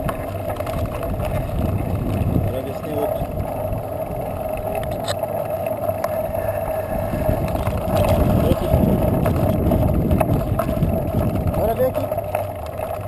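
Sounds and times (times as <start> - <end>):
wind on microphone: 0.0 - 12.2
bicycle riding hum: 0.0 - 13.0.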